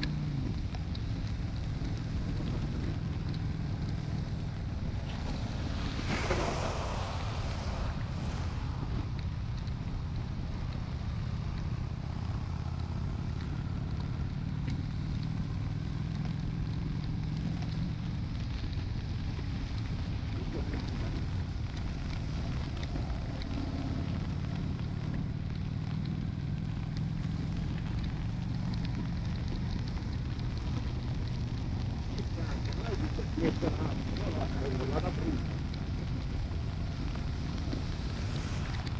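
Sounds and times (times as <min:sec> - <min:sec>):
motorcycle engine cruising: 0:00.0 - 0:38.9
raindrops ticking on microphone: 0:00.0 - 0:38.9
wind noise on microphone: 0:04.6 - 0:10.4.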